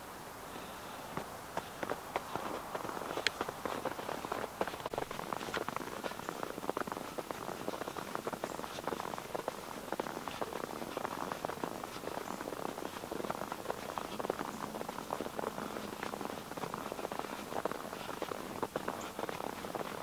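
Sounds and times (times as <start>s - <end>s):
boots crunching through snow: 0.6s - 20.0s.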